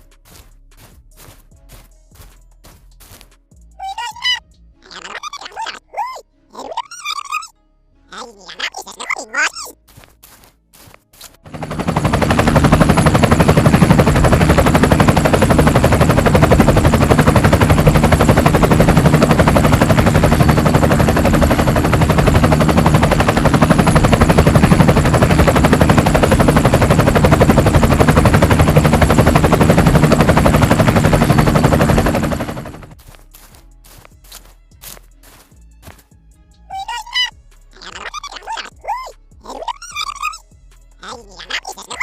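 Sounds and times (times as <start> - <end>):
helicopter rotor chop: 3.8 - 5.8, 11.4 - 33.0, 36.7 - 40.4, 41.0 - 42.0
high turbine whine: 11.5 - 32.9.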